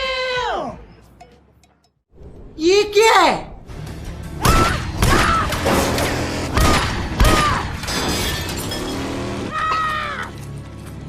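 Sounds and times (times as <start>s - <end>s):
background music: 0.0s - 11.0s
glass shattering: 5.5s - 9.8s.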